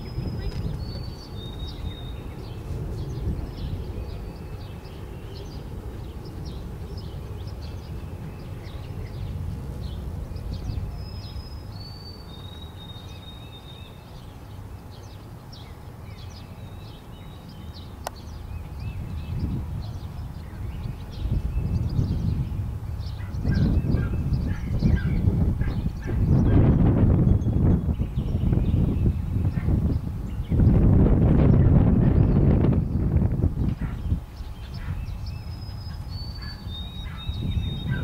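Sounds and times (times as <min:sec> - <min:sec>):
steady low rumble: 0:00.0 - 0:12.9
songbirds chirping and singing: 0:00.0 - 0:38.0.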